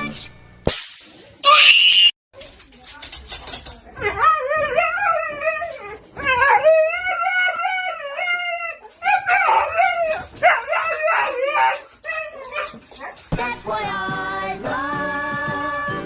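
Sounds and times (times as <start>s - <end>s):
dog howling and whining: 4.1s - 13.3s.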